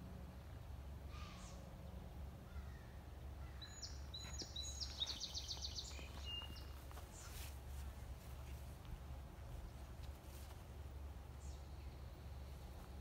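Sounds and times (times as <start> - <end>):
low outdoor rumble: 0.0 - 13.0
songbird singing a trill: 2.5 - 7.4, 11.3 - 13.0.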